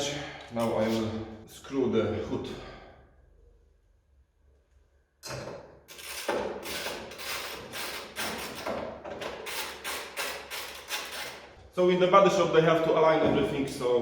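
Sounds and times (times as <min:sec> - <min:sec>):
ratchet wrench rattling: 0:05.9 - 0:11.5.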